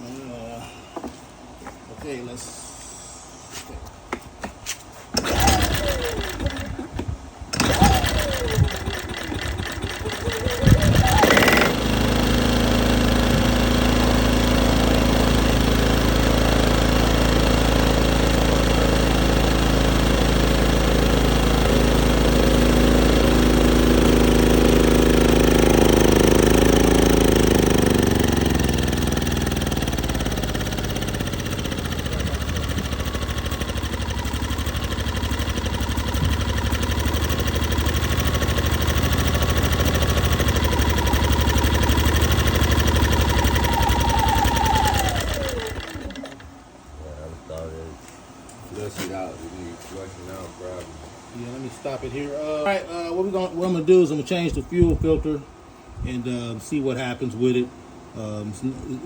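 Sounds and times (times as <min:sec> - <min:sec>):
generator engine running: 0:05.2 - 0:47.8.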